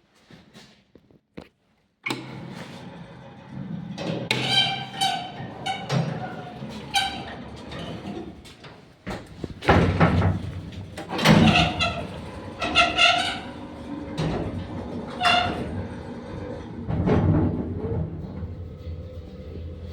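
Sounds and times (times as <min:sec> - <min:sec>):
elevator doors clunking: 0:02.1 - 0:19.9
elevator squeaking: 0:04.3 - 0:08.4, 0:09.1 - 0:16.9.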